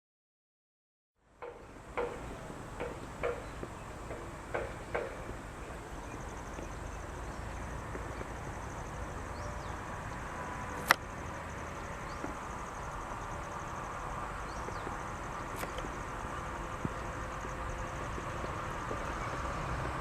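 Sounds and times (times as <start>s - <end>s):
steady low rumble: 1.6s - 20.0s
sharp click: 15.6s - 15.9s.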